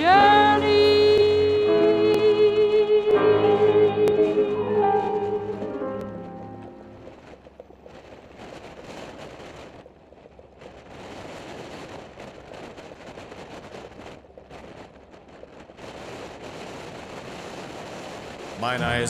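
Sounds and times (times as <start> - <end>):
song: 0.0 - 7.2, 18.6 - 19.0
rushing wind: 0.0 - 19.0.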